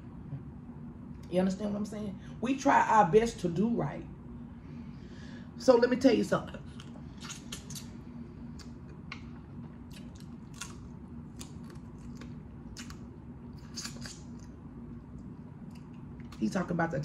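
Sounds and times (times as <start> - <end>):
wet chewing clicks and smacks: 6.6 - 16.4.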